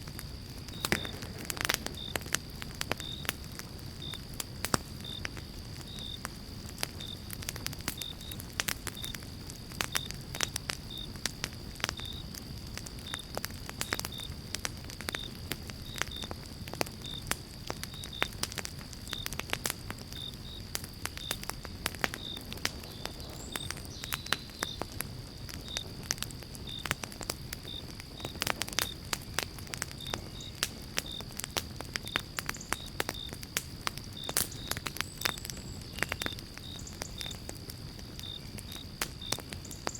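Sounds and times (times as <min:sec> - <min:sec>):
campfire crackling and popping: 0:00.0 - 0:39.9
low rumble of burning fire: 0:00.0 - 0:39.9.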